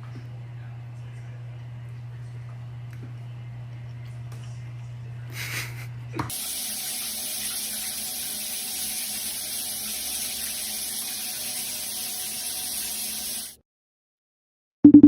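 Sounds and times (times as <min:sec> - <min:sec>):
running water: 0:06.3 - 0:13.6.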